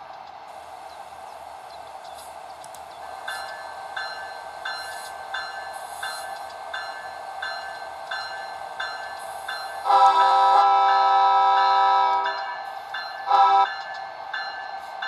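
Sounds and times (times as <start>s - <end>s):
train wheels hissing on rail: 0.0s - 15.0s
crossing bell ringing: 3.2s - 15.0s.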